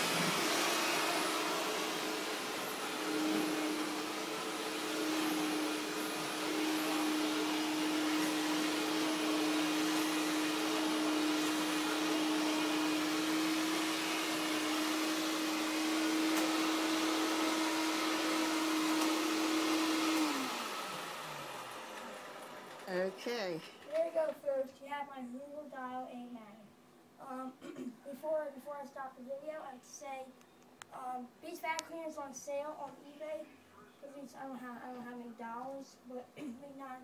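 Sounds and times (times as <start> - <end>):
vacuum cleaner motor whine: 0.0 - 23.4.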